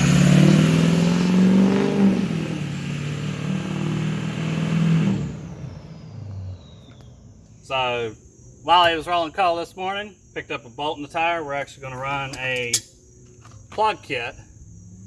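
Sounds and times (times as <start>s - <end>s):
diesel engine accelerating: 0.0s - 7.8s.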